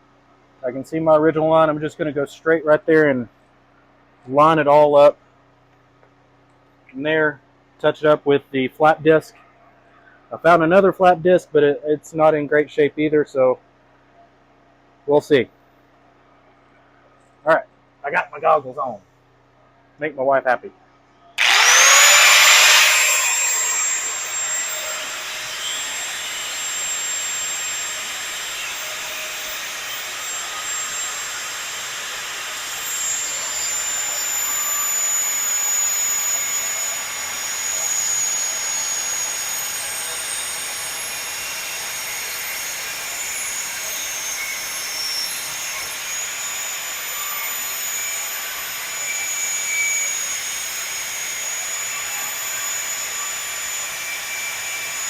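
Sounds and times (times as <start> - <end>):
angle grinder cutting metal: 21.4 - 55.0.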